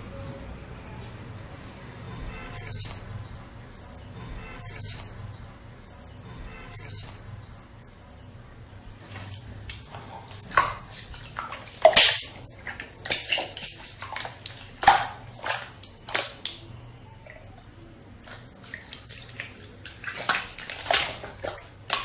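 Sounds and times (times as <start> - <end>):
slime squelching and popping: 9.6 - 16.6, 18.3 - 22.0.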